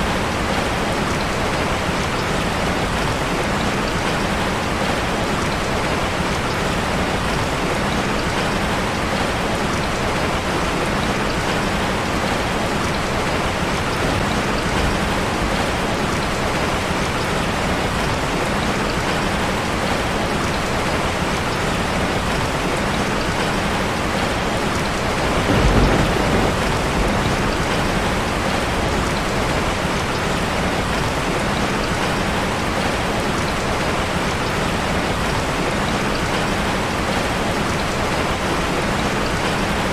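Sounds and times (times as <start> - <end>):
heavy rain on a metal roof: 0.0 - 39.9
thunder rumbling: 24.7 - 29.8.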